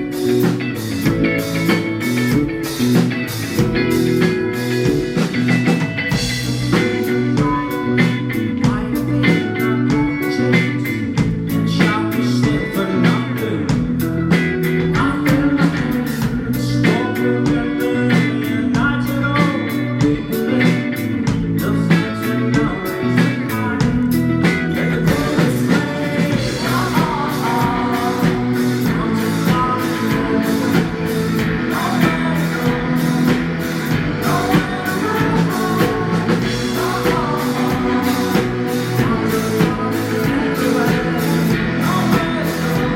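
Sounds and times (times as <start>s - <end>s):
drum kit beat: 0.0s - 42.9s
electric guitars: 0.0s - 42.9s
person singing: 3.6s - 42.9s.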